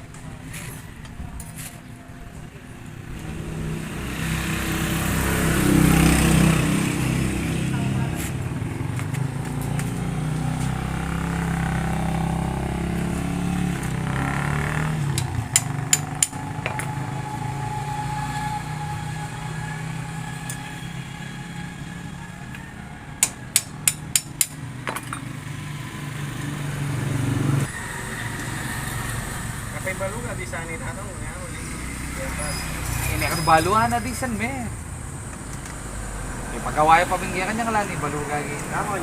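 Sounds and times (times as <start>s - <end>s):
motorcycle engine running: 3.1s - 17.4s.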